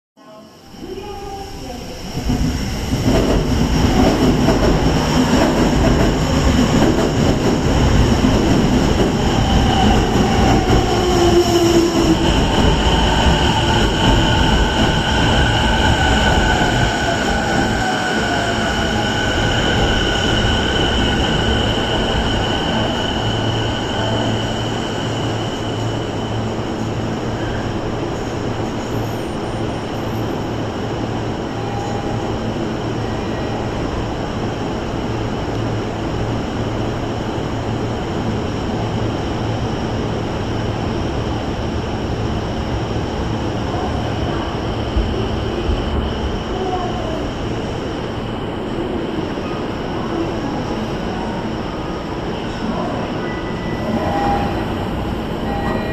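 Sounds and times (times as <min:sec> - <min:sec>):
low hum of standing train: 0:00.2 - 0:55.9
high-pitched brake squeal: 0:31.5 - 0:32.4, 0:53.2 - 0:55.9.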